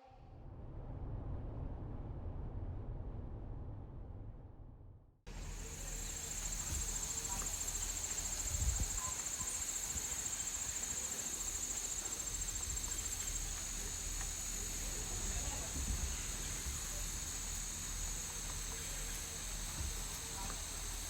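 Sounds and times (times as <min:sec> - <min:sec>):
insects trilling: 0:05.3 - 0:21.0.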